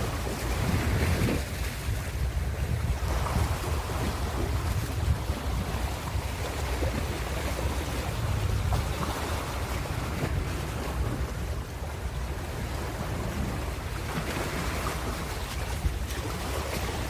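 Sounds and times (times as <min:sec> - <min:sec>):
ocean surf washing in: 0:00.0 - 0:06.2
wind buffeting microphone: 0:00.0 - 0:17.0.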